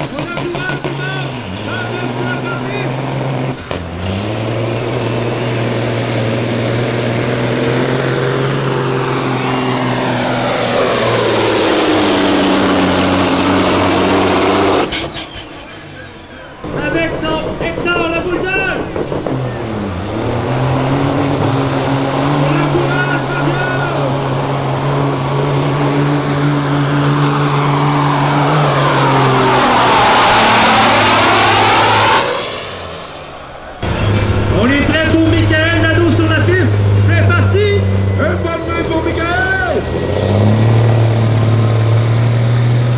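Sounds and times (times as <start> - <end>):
diesel truck engine at full throttle: 0.0 - 42.9
high turbo whistle: 0.6 - 17.3, 23.0 - 34.2.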